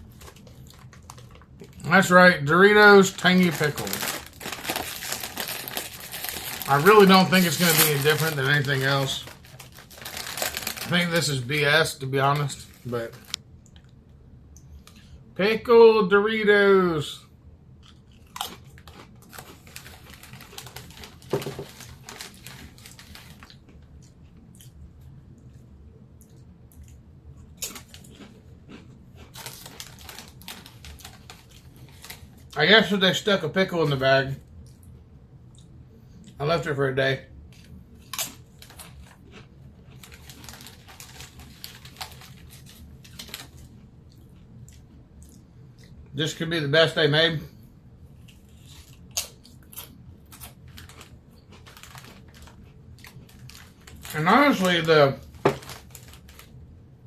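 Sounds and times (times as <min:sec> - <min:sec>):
chewing crunchy chips: 0:00.0 - 0:02.1, 0:03.0 - 0:11.5, 0:17.8 - 0:32.6, 0:37.6 - 0:46.0, 0:48.2 - 0:56.6.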